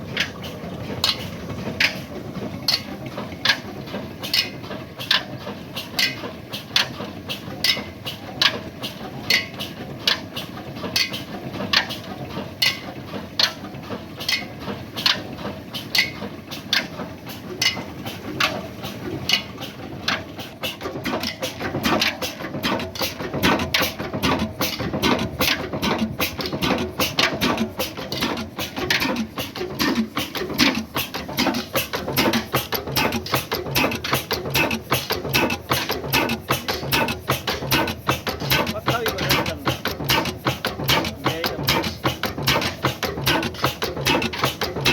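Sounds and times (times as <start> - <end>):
diesel engine clacking slowly: 0.0 - 44.9
fast irregular clicking: 19.3 - 44.9.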